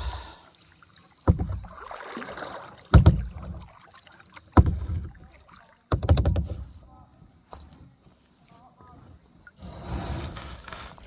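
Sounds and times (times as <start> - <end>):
water splash: 0.0 - 5.8
paddle knock: 1.2 - 6.9.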